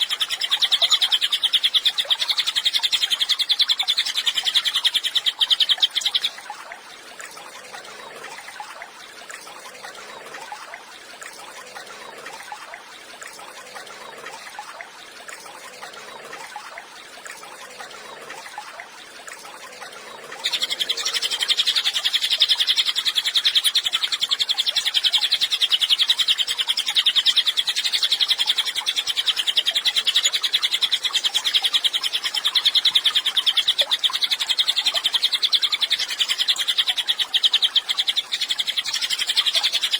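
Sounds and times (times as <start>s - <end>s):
bird twittering: 0.0s - 6.4s, 20.4s - 39.9s.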